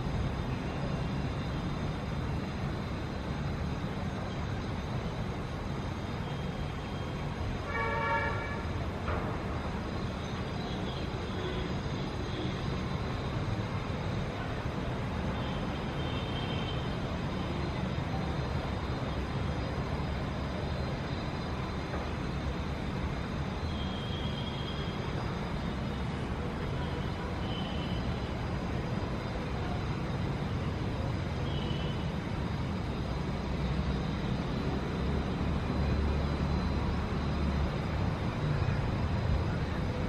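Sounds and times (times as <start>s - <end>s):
low rumble of traffic: 0.0s - 40.0s
vehicle horn toot: 7.7s - 8.6s.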